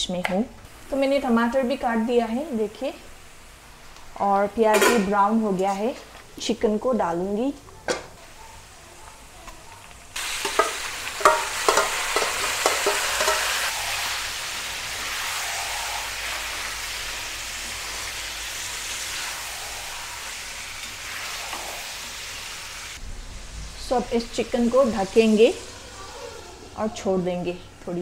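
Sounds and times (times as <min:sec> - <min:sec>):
chicken frying sizzle: 0:00.7 - 0:28.0
spoon scraping a metal pan: 0:10.4 - 0:13.9.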